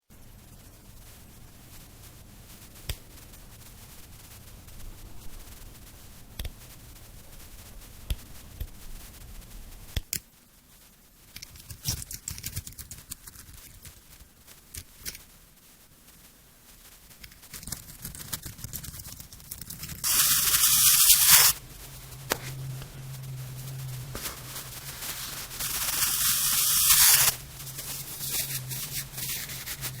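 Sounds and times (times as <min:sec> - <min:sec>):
low steady hum: 0:13.6 - 0:30.0
knife hissing scrapes: 0:20.0 - 0:21.6, 0:24.0 - 0:30.0.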